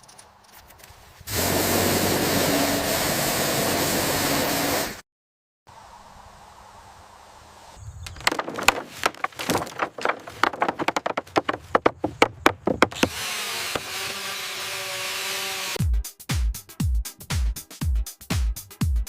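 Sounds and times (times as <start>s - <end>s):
sharp knocks and clatters: 8.1s - 13.2s.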